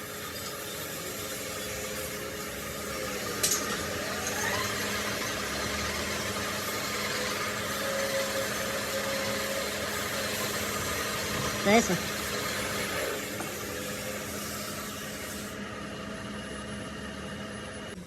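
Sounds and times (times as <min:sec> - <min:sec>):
workshop machine humming: 0:00.0 - 0:18.0
brief rising whine: 0:12.9 - 0:18.0.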